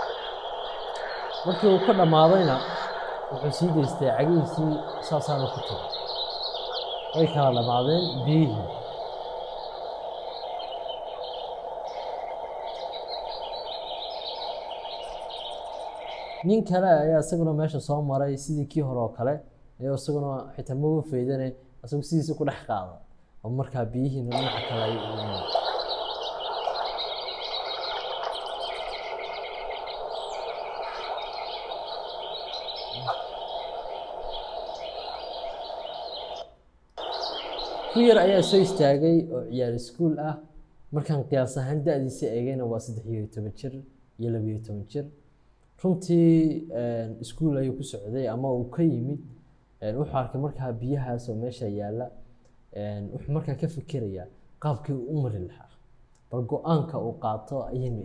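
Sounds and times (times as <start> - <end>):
small birds chirping: 0.0 - 18.8, 23.9 - 40.0
outdoor background noise: 0.0 - 58.0
steady background hiss: 0.0 - 58.0.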